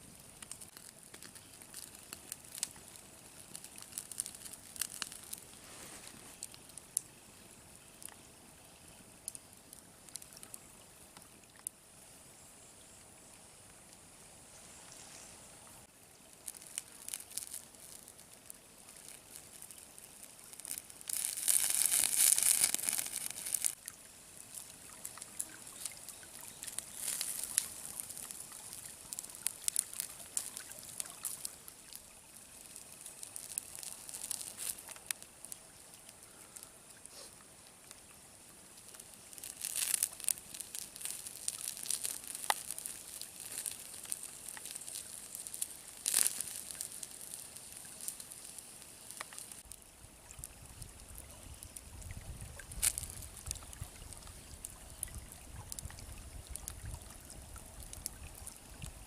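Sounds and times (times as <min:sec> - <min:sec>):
rustling: 0:00.4 - 0:06.6, 0:14.5 - 0:23.8, 0:24.4 - 0:35.2, 0:38.8 - 0:49.7
water pouring: 0:16.2 - 0:36.6, 0:38.1 - 0:51.2.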